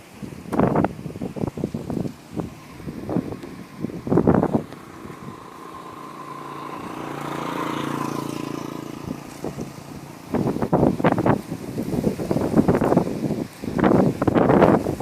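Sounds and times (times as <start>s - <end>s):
wind buffeting microphone: 0.0s - 15.0s
vehicle engine passing: 1.6s - 12.0s.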